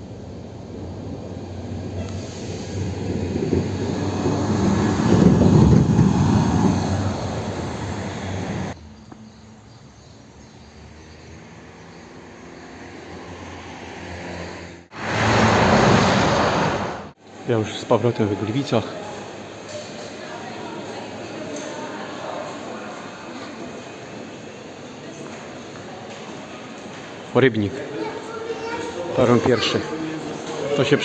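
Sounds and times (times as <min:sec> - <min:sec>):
sudden loud rush of noise: 0:00.0 - 0:08.8, 0:14.8 - 0:17.2
steady engine hum: 0:00.0 - 0:09.7
vehicle passing by: 0:00.7 - 0:08.8, 0:10.8 - 0:17.2.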